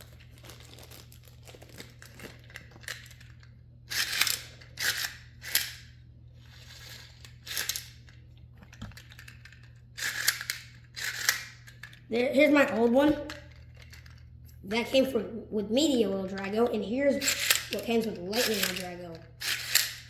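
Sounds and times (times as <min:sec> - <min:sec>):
packaging crinkling and tearing: 0:00.0 - 0:04.7
faint low hum: 0:00.0 - 0:20.0.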